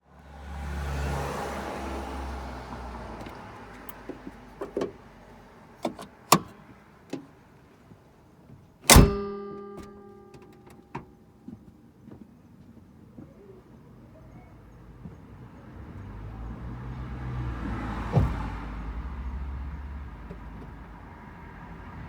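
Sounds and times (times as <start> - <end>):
engine bay clicks and clacks: 3.1 - 7.4, 8.4 - 13.4, 20.2 - 20.8
loud metallic clunk: 8.9 - 11.1.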